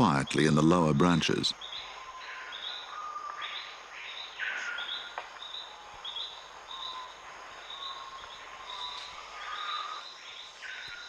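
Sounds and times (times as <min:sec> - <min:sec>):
birds and insects high notes: 0:00.0 - 0:11.0.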